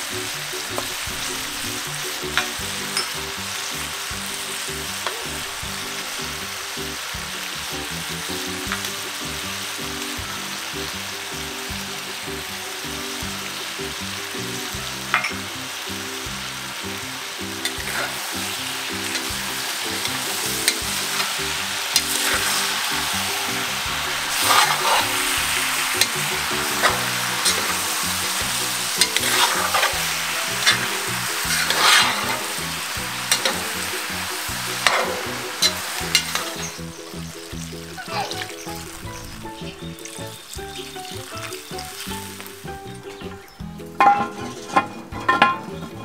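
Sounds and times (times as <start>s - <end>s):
meat sizzling in a pot: 0.0s - 44.1s
spoon scraping a pot: 24.3s - 25.3s, 29.0s - 32.5s.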